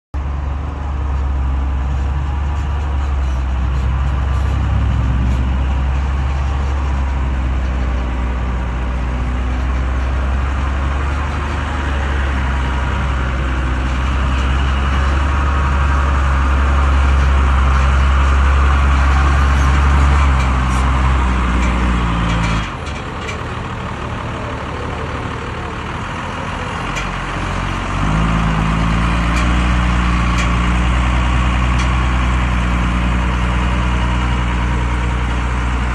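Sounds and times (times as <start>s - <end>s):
truck engine running: 0.2s - 35.9s.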